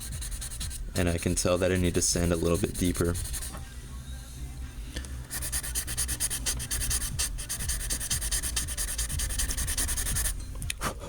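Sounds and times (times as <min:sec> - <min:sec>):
sandpaper scratching: 0:00.0 - 0:00.8, 0:01.4 - 0:03.5, 0:05.3 - 0:10.4.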